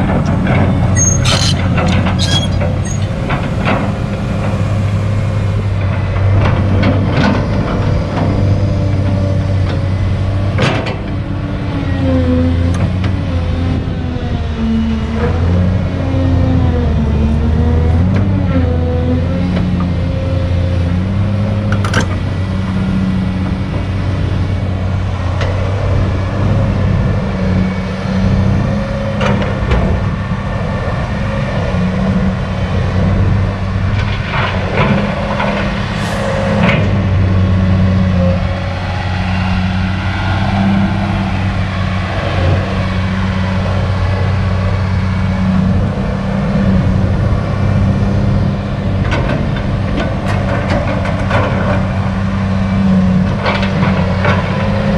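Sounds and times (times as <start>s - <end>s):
knocks and clanks: 0.0s - 4.9s, 21.7s - 22.3s
excavator diesel engine running: 0.0s - 54.9s.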